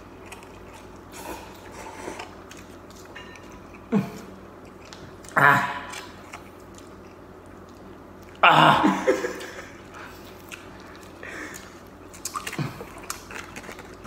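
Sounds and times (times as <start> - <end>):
person chewing noodles: 0.0 - 14.0
person laughing: 3.9 - 4.3, 8.4 - 9.8
loud vocal outburst: 8.4 - 9.0.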